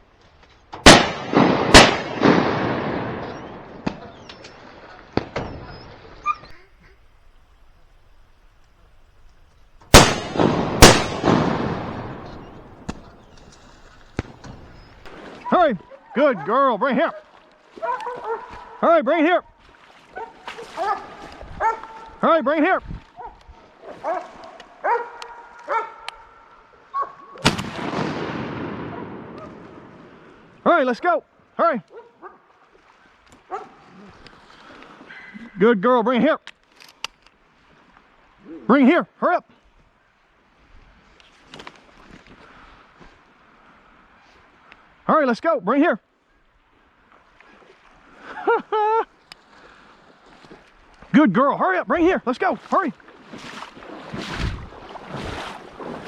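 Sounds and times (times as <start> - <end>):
rolling echo of gunshots: 0.8 - 4.3, 9.9 - 13.4, 27.4 - 30.0
shotgun blasts: 0.8 - 4.4, 9.9 - 15.4, 27.4 - 30.0.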